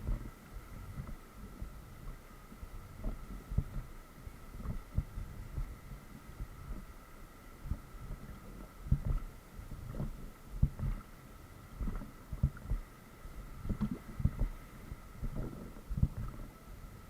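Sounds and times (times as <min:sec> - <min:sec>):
faint high-pitched hum: 0:00.0 - 0:17.0
oars and hull knocking: 0:11.8 - 0:12.9, 0:13.6 - 0:14.6.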